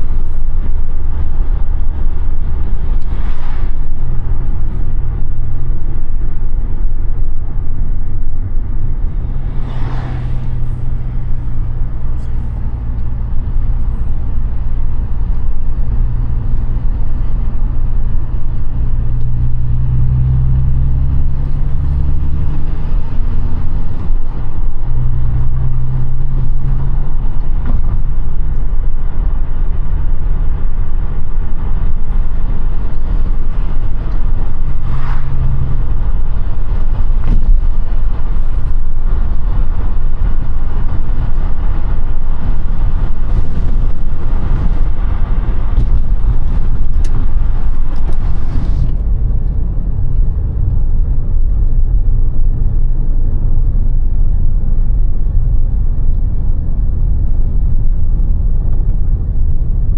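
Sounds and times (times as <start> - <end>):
car engine low note: 0.0 - 59.9
road and wind rumble: 0.0 - 59.9.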